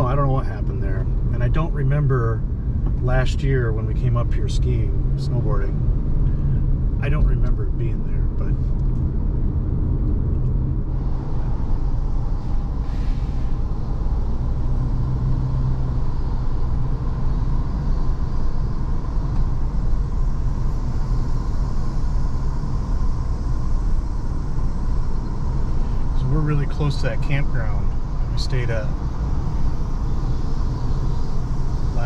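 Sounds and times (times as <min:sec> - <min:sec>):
car engine and tyre rumble: 0:00.0 - 0:32.0.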